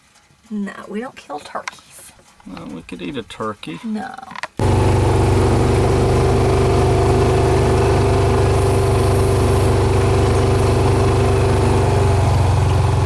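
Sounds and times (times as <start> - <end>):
vehicle engine running: 4.6 - 13.0.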